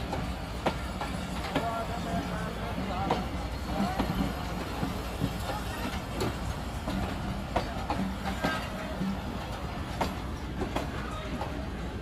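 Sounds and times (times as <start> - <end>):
low train rumble: 0.0 - 12.0
train wheels clacking: 0.0 - 12.0.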